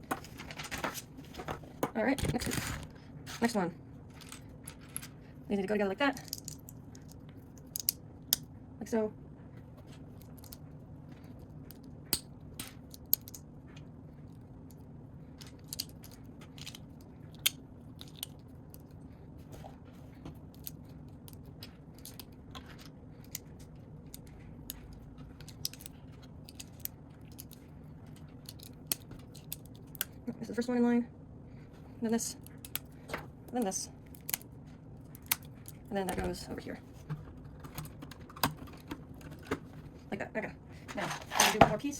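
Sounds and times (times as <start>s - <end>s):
plastic bricks clicking and snapping: 6.2s - 8.5s, 11.7s - 13.4s, 15.4s - 18.9s, 20.5s - 24.8s, 25.4s - 27.6s, 28.2s - 30.2s.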